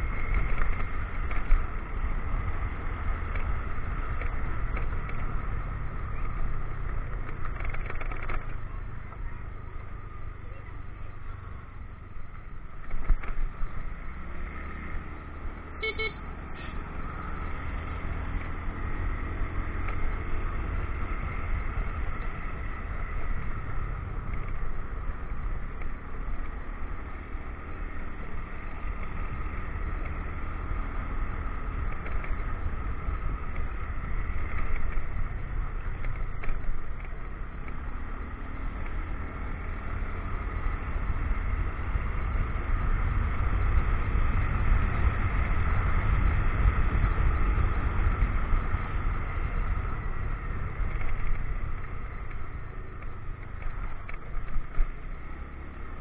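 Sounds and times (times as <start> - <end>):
motorcycle engine drone: 0.0 - 56.0
road and wind noise: 0.0 - 56.0.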